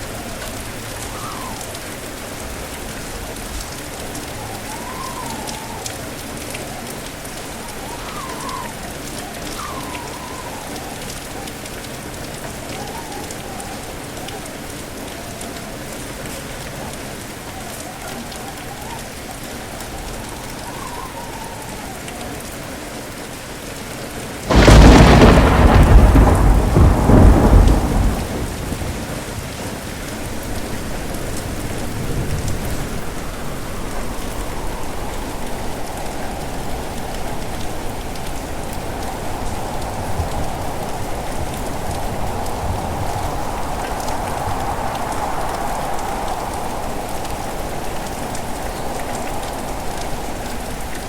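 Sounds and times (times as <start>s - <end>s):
steady rain: 0.0s - 51.0s
loud thunderclap rumbling: 24.5s - 50.4s.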